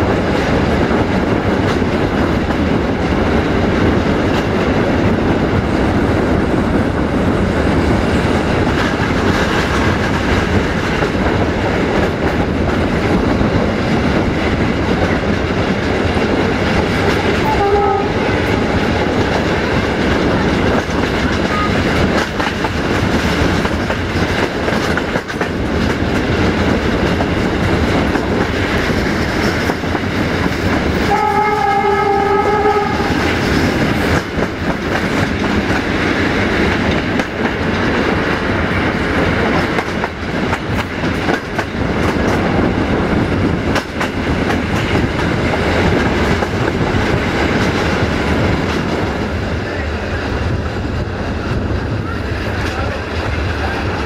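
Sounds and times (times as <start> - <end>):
train horn blasts: 17.4 - 18.7, 31.0 - 33.2.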